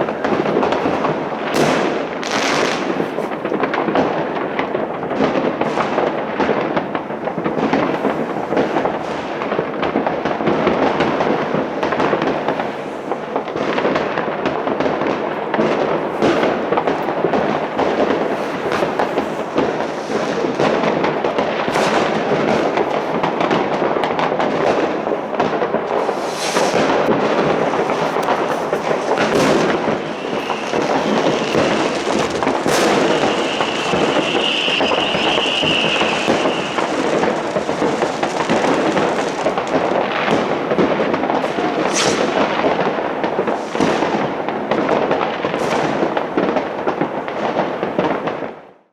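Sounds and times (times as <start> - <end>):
fireworks and firecrackers banging: 0.0 - 48.9
high firework whistle: 25.9 - 40.1, 41.6 - 42.4.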